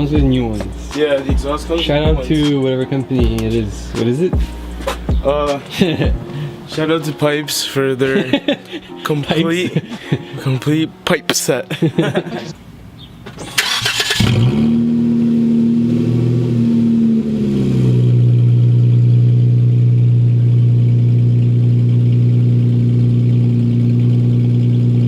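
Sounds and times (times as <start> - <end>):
car engine starting and idling: 13.2 - 25.0.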